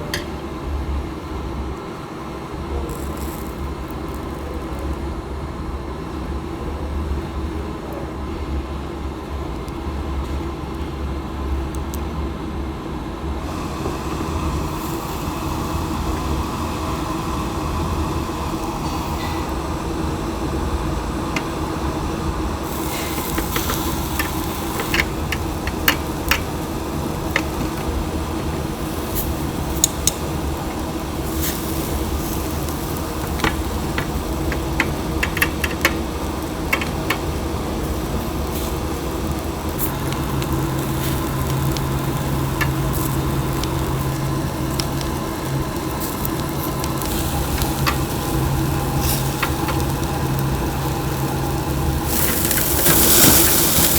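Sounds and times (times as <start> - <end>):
steady mechanical hum: 0.0 - 53.9
chicken sizzling on a grill: 1.6 - 6.4, 13.4 - 53.9.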